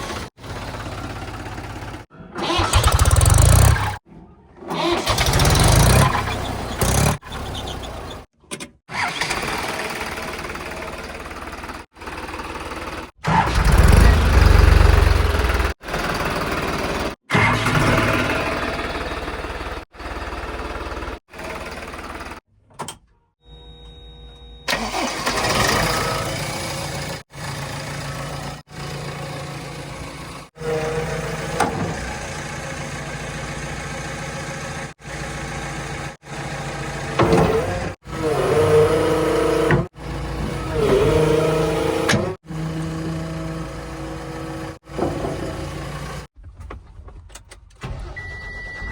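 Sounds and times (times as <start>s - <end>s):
heavy diesel engine revving: 0.0s - 4.0s, 4.8s - 8.3s, 12.9s - 19.9s, 35.7s - 46.3s.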